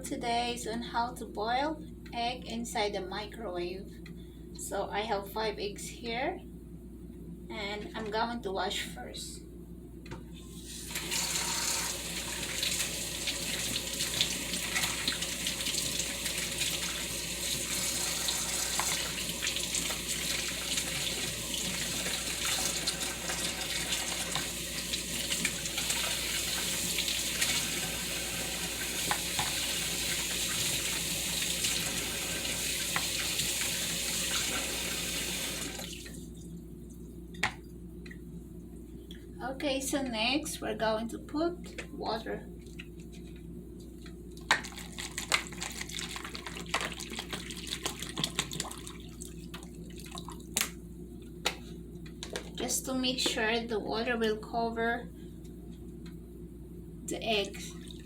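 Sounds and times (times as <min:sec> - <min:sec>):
tap water running: 0:10.5 - 0:36.3, 0:44.5 - 0:50.7.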